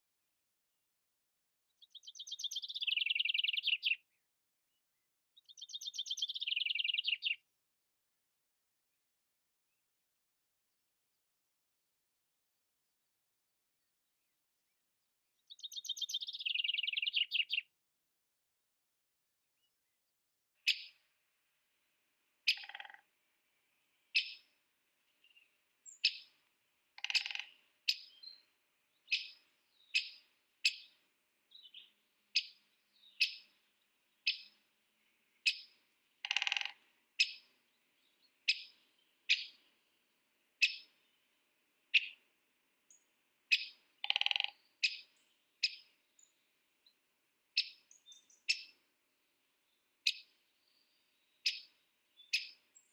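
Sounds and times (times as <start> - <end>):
bird trilling: 22.5 - 23.0, 27.0 - 28.2, 35.4 - 37.4, 43.5 - 45.0.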